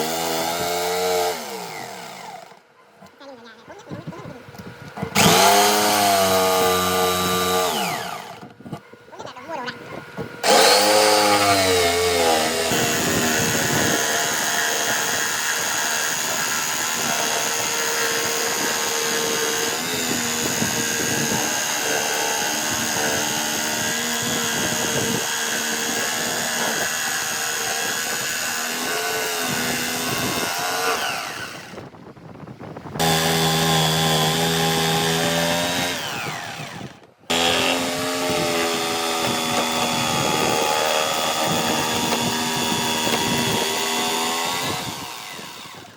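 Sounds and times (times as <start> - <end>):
power tool motor running: 0.0 - 2.6, 4.2 - 8.6, 10.3 - 31.9, 33.0 - 45.9.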